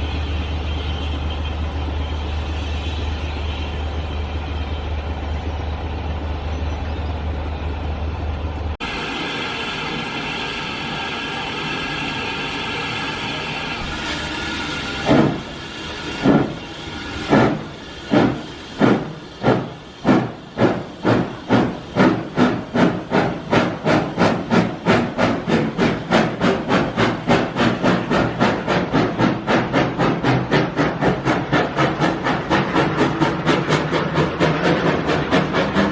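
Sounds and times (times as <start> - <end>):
steam hissing: 8.8 - 35.9
steam locomotive exhaust chuffs: 8.8 - 35.9.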